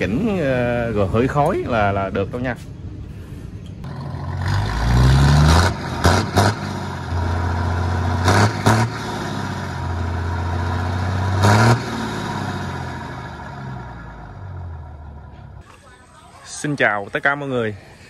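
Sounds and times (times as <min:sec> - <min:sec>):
diesel engine revving: 0:03.8 - 0:15.6.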